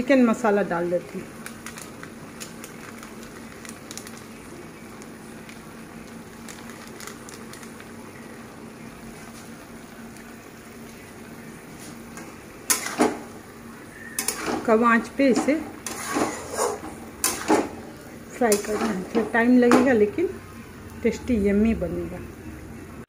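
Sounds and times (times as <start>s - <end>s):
faint crackles: 1.0s - 12.0s.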